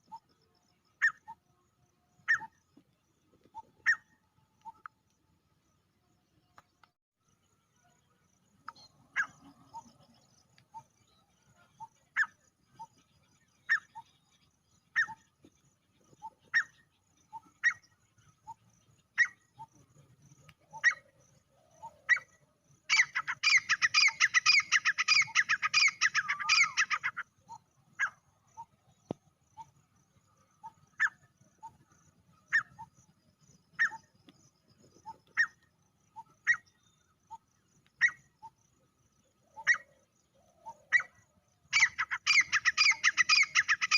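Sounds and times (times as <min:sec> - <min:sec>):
francolin calling: 0:02.2 - 0:02.7, 0:08.6 - 0:15.3, 0:16.1 - 0:19.8, 0:20.5 - 0:28.8, 0:33.7 - 0:43.9.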